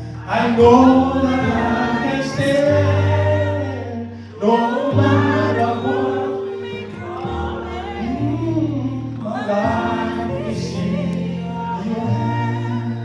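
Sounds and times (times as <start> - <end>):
congregation singing: 0.0 - 13.0
steady bass accompaniment: 0.0 - 13.0.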